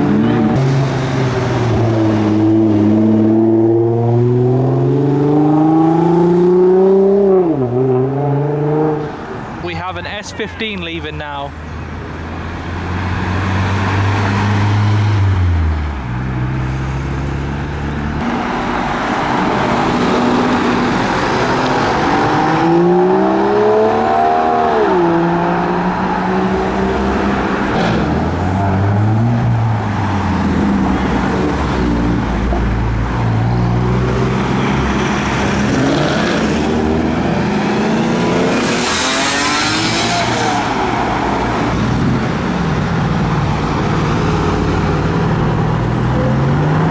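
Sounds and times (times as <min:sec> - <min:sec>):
car engines revving: 0:00.0 - 0:46.9
car passing with loud rush: 0:12.1 - 0:46.9.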